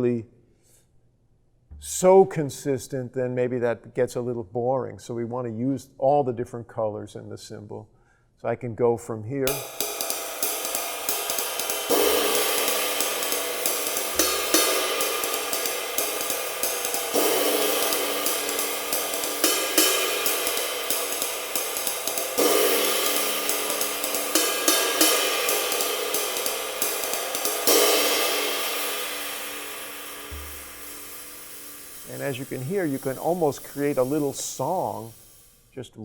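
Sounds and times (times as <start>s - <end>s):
ride cymbal swing pattern: 9.5s - 35.7s.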